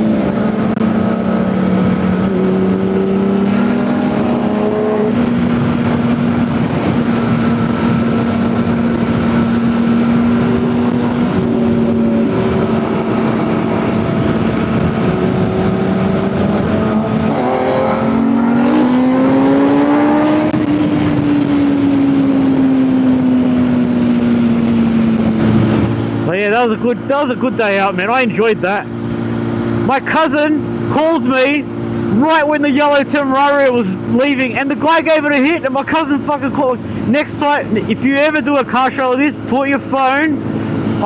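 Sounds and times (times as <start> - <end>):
motorcycle engine cruising: 0.0 - 41.0
rush of noise: 0.0 - 41.0.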